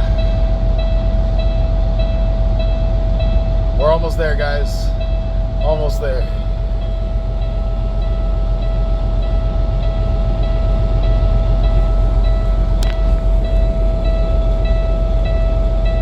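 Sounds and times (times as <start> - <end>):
diesel engine idling: 0.0 - 16.0
click: 12.8 - 13.0.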